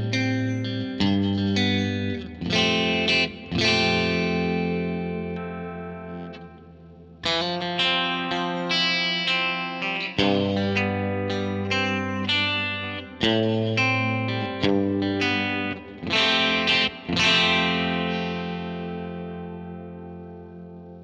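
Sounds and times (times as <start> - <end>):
electric guitar chords strummed: 0.0 - 21.0.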